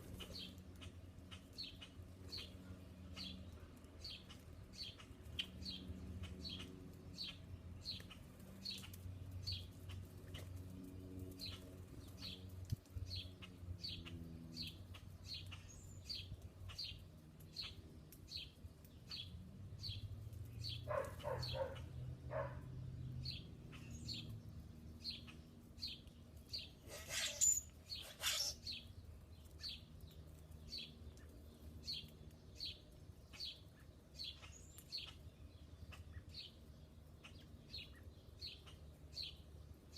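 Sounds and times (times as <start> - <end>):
small songbird chirping: 0.0 - 10.5, 11.3 - 39.9.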